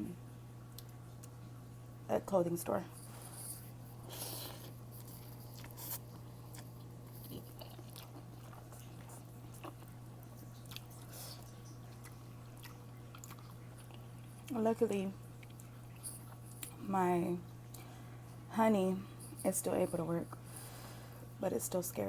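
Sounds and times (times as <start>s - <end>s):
low electrical hum: 0.0s - 22.0s
chewing and biting: 3.2s - 14.6s, 15.3s - 16.8s.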